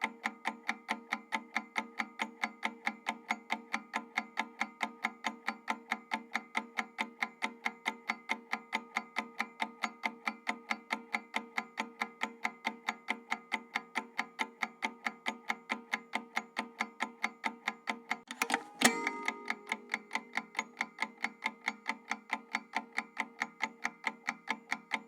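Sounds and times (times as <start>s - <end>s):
clock ticking: 18.3s - 20.4s.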